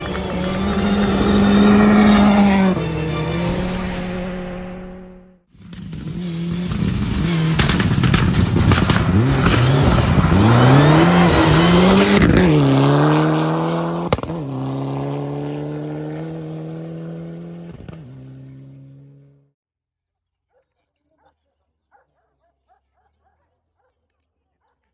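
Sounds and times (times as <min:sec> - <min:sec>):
rally car engine revving: 0:00.0 - 0:19.5
exhaust crackling pops: 0:05.6 - 0:12.6, 0:13.9 - 0:14.6
sharp crack: 0:06.6 - 0:12.4.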